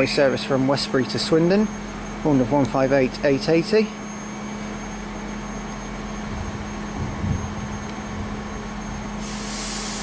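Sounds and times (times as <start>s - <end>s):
train diesel engines droning: 0.0s - 10.0s
low rumble: 6.1s - 9.1s.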